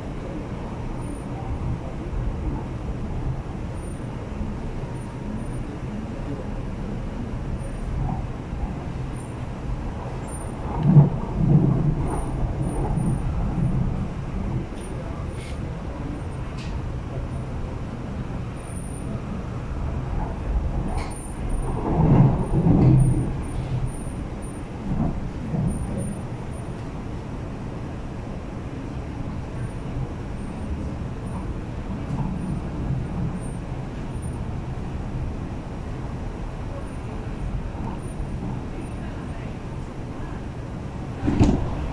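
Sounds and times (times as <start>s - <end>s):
train rumbling from inside: 0.0s - 41.9s.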